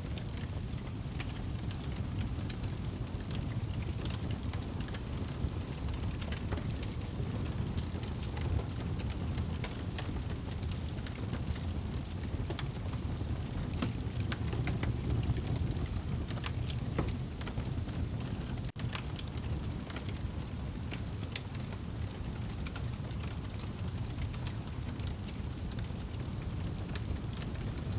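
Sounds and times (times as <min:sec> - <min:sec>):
fire crackling and popping: 0:00.0 - 0:27.9
steady rain: 0:00.0 - 0:27.9.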